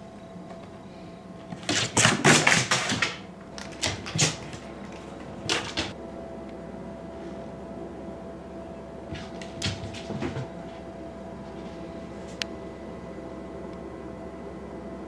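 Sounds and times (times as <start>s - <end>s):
rapid light clattering and knocking: 1.5s - 6.0s.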